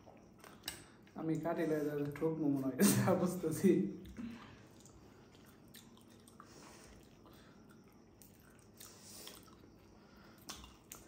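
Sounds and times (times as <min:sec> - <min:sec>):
faint chewing: 0:04.0 - 0:11.0.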